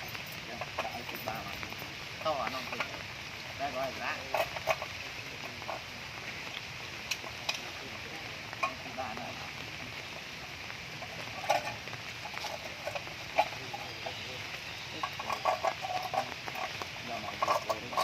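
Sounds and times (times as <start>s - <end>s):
rain hissing: 0.0s - 18.0s
farm animals calling: 3.6s - 18.0s.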